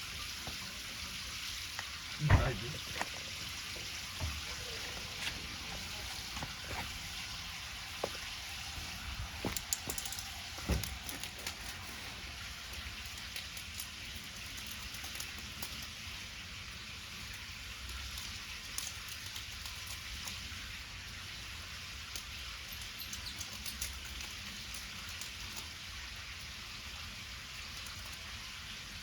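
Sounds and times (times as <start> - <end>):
campfire crackles and pops: 0.3 - 20.7.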